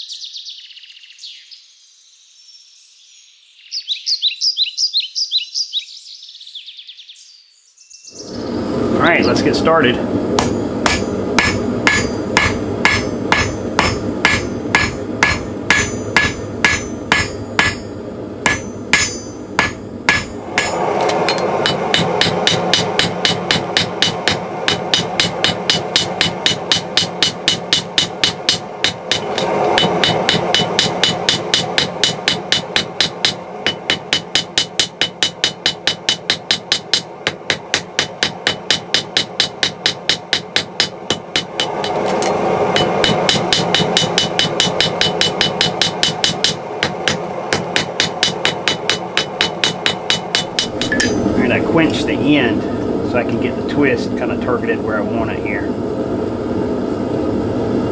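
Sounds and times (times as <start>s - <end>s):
steady rushing noise: 8.2s - 57.9s
hammer ringing on anvil: 10.4s - 52.6s.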